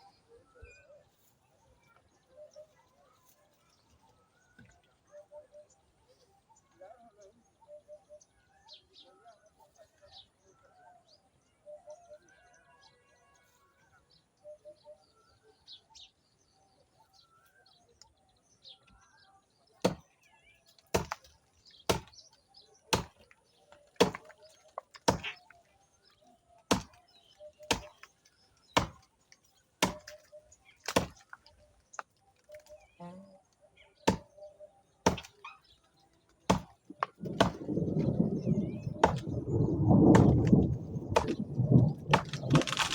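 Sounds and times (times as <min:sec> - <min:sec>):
faint birds chirping: 0:00.0 - 0:42.9
axe chopping tree trunk: 0:19.8 - 0:20.1, 0:20.9 - 0:21.3, 0:21.9 - 0:22.2, 0:22.9 - 0:25.4, 0:26.7 - 0:27.0, 0:27.6 - 0:28.1, 0:28.7 - 0:29.1, 0:29.8 - 0:31.4, 0:34.0 - 0:34.4, 0:35.0 - 0:35.3, 0:36.5 - 0:37.7, 0:39.0 - 0:39.3, 0:40.1 - 0:41.4, 0:42.1 - 0:42.9.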